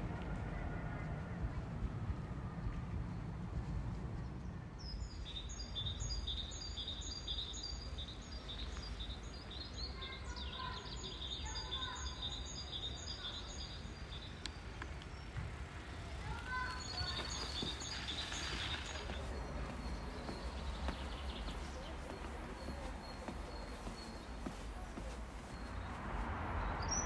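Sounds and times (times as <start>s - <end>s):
low outdoor background rumble: 0.0s - 6.6s
songbird high repeated chirps: 4.8s - 14.6s.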